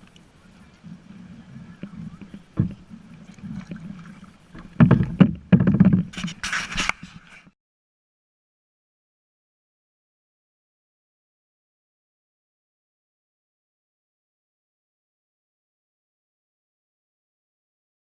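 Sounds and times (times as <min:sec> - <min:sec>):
kayak knocks: 0:00.0 - 0:06.9.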